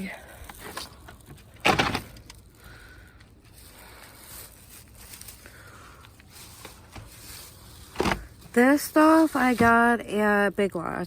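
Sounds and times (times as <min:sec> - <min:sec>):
rustling and scraping: 0:00.2 - 0:10.0
shopping bag thump: 0:01.6 - 0:02.2, 0:07.9 - 0:08.4.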